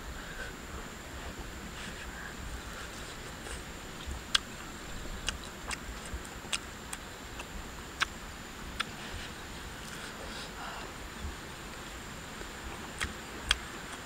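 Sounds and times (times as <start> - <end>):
high insect drone: 0.0 - 14.0
lip-smacking and chewing: 2.8 - 8.2, 12.9 - 14.0.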